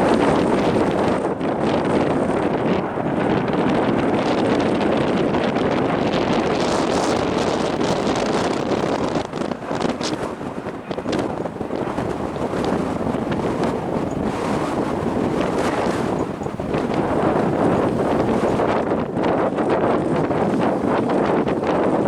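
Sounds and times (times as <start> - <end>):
gusty wind buffeting microphone: 0.0 - 22.0.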